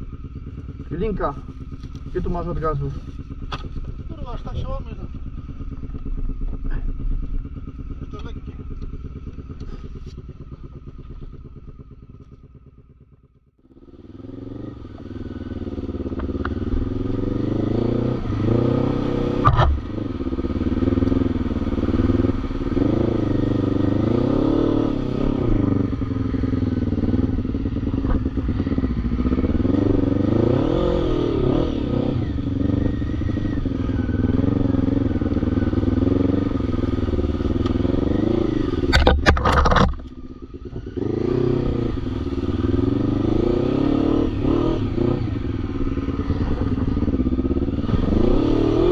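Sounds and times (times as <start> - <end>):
faint engine: 0.0 - 48.9
atv engine revving: 13.8 - 48.9.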